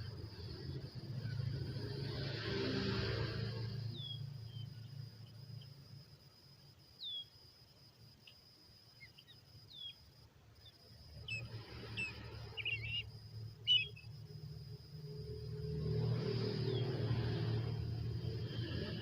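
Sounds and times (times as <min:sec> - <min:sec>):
high insect drone: 0:00.0 - 0:19.0
high downward-sweeping bird chirps: 0:03.8 - 0:04.9, 0:07.0 - 0:07.3, 0:08.9 - 0:14.3, 0:16.4 - 0:17.7.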